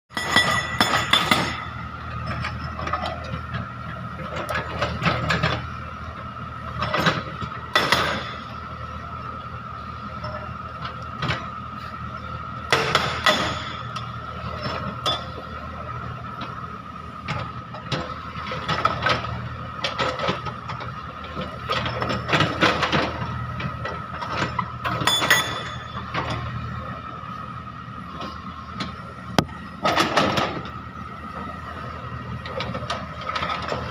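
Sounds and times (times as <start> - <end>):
excavator engine humming and whining: 0.1 - 33.9
hydraulic breaker hammering: 12.7 - 14.0.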